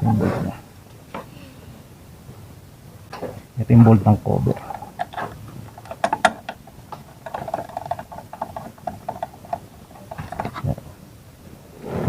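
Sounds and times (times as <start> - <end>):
metal parts and tools clicking: 4.5 - 10.8.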